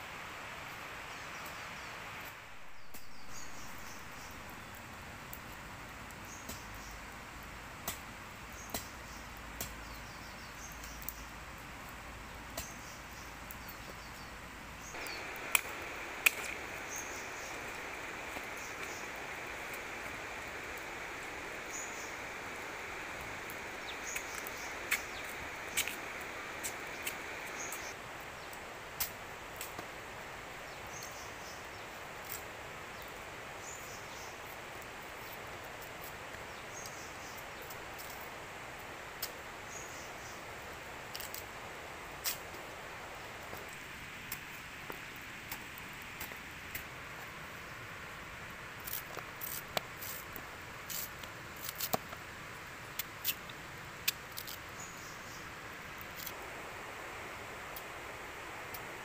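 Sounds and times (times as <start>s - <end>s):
steady background hiss: 0.0s - 59.0s
faint chirps: 12.6s - 28.6s
loud high hiss: 14.8s - 35.4s.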